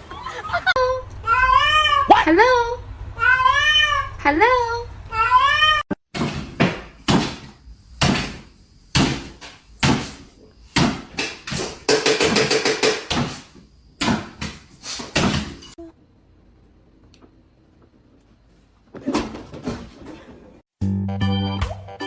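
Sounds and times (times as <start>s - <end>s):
cat meowing: 1.2s - 2.2s, 3.2s - 4.2s, 5.1s - 5.9s
knocking and banging: 6.1s - 15.8s.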